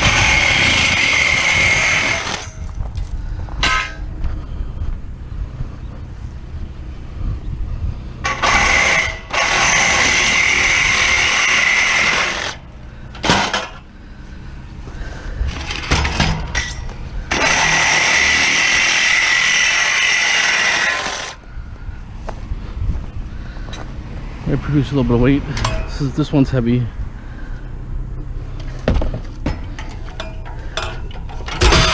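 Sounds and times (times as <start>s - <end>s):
power tool cutting metal: 0.0s - 2.6s, 8.2s - 12.6s, 17.3s - 21.4s.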